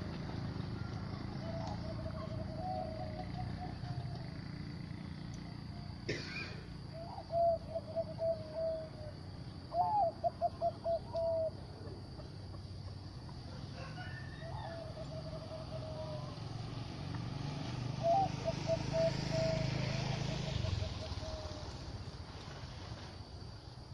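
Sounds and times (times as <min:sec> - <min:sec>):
dove cooing: 0:01.1 - 0:04.4, 0:06.8 - 0:11.7, 0:13.8 - 0:16.8, 0:17.9 - 0:21.9.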